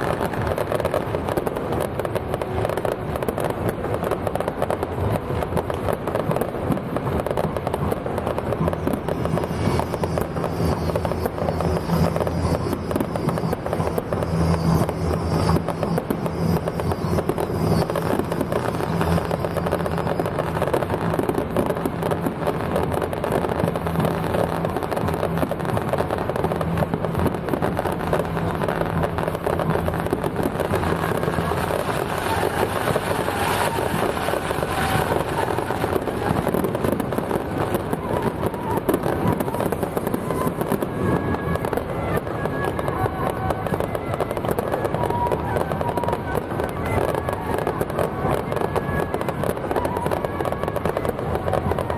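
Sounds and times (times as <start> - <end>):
fireworks crackling: 0.0 - 51.9.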